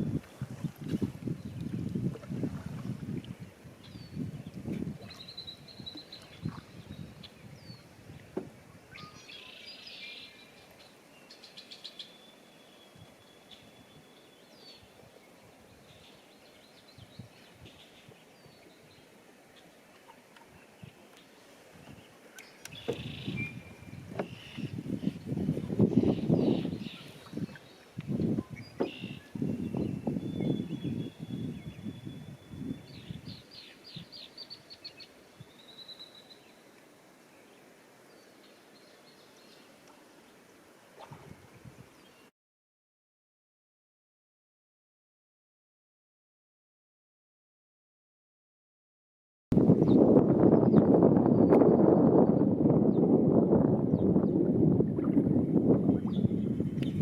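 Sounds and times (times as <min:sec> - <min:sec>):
songbird singing high trill: 0:03.8 - 0:07.8, 0:08.9 - 0:19.1, 0:22.4 - 0:36.6
faint bird chirps: 0:08.9 - 0:19.7, 0:26.0 - 0:36.6.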